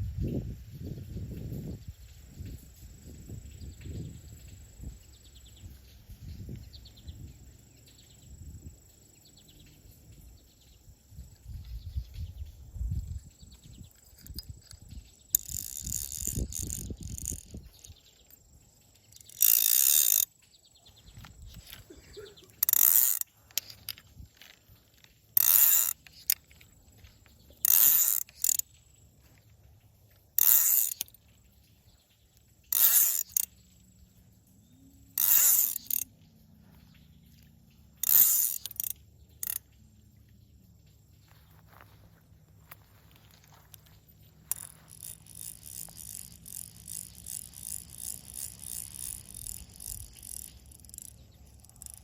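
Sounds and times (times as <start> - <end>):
fishing reel ratchet clicking: 11.2 - 39.8, 42.7 - 52.0
handling noise: 41.2 - 52.0.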